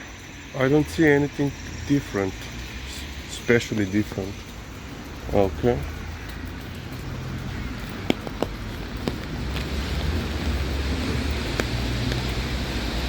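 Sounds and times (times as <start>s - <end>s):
rain falling: 0.0s - 13.0s
sharp taps: 7.8s - 12.4s.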